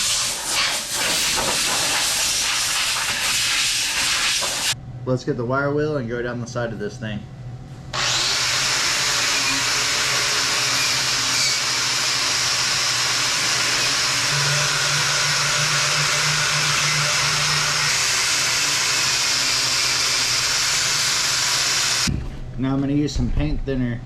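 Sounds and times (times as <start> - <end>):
power tool motor hum: 8.0 - 22.1.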